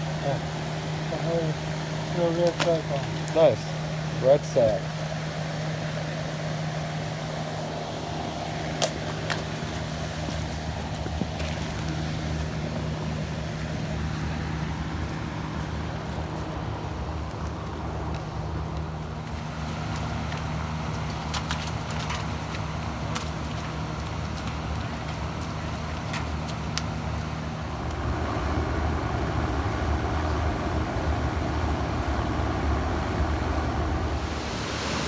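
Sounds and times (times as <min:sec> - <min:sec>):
low hum: 0:27.6 - 0:35.0
even rushing sound: 0:28.0 - 0:35.0.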